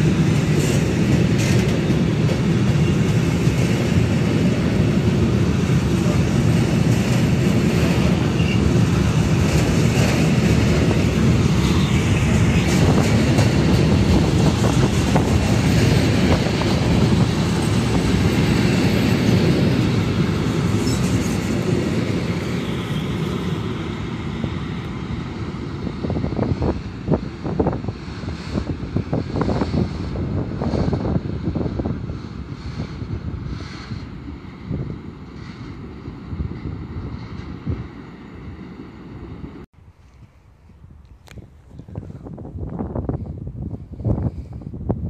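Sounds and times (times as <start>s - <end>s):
rail joint clicks: 0.0s - 23.6s
freight train wheels rumbling: 0.0s - 45.0s.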